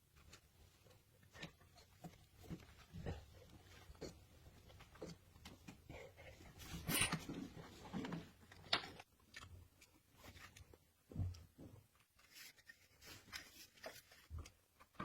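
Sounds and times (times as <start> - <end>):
handling clicks scrapes and rustles: 6.6 - 10.8.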